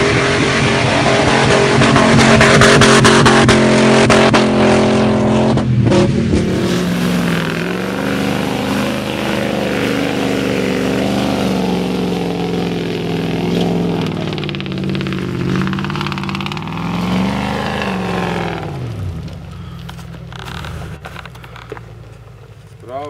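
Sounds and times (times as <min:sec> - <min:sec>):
engine revving: 0:00.0 - 0:21.8.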